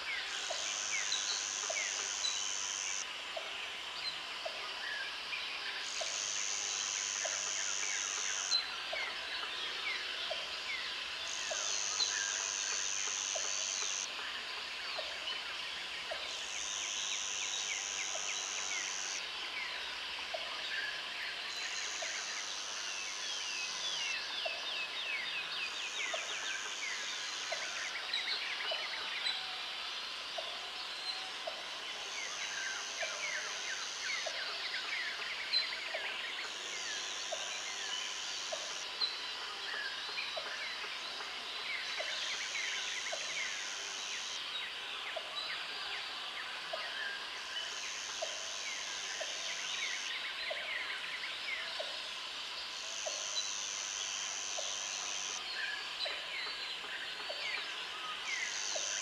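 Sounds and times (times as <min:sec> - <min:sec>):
high insect buzz: 0:00.1 - 0:03.1, 0:05.8 - 0:08.6, 0:10.7 - 0:14.1, 0:16.4 - 0:19.3, 0:52.8 - 0:55.4.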